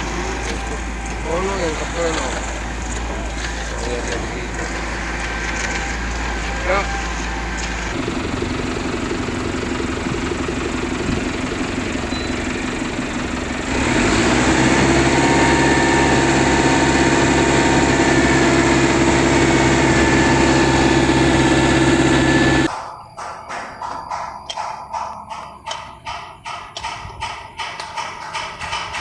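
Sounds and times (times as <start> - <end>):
heavy machinery engine revving: 0.0 - 22.7.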